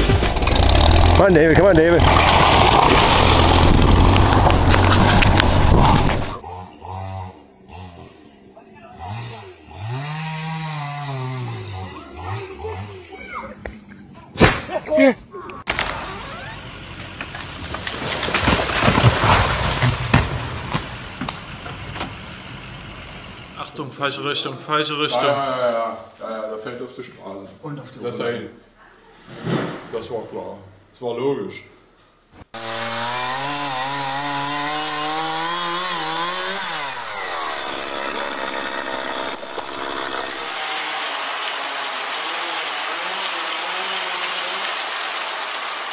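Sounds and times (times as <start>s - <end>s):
chainsaw engine revving: 0.0s - 13.2s, 15.7s - 23.6s, 32.6s - 45.9s
tree falling: 1.8s - 6.4s, 15.7s - 23.5s, 32.6s - 45.9s.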